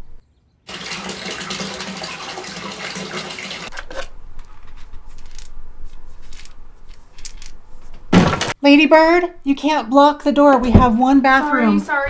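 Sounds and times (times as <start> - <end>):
low hum: 0.0 - 0.2
water running from tap: 0.7 - 4.0.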